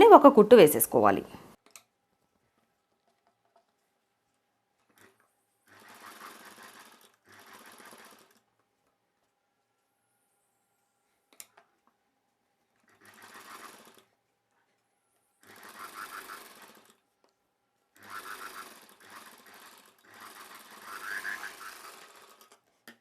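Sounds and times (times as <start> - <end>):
sewing machine stitching: 4.9 - 8.5, 12.8 - 14.1, 15.4 - 17.0, 18.0 - 22.7.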